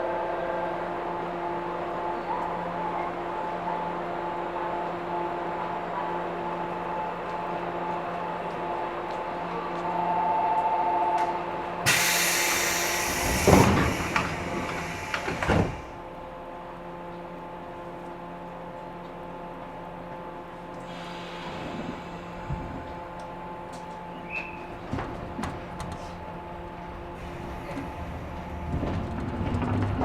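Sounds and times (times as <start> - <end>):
train equipment hum: 0.0 - 30.0
train door air hiss: 11.8 - 16.0, 20.8 - 22.9
train doors banging shut: 11.9 - 16.0.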